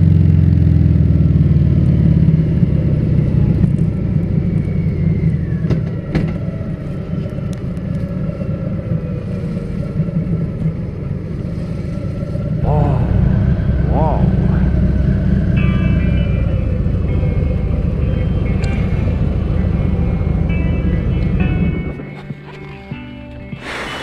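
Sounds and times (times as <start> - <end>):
motorcycle engine running: 0.0 - 5.9, 12.6 - 23.6.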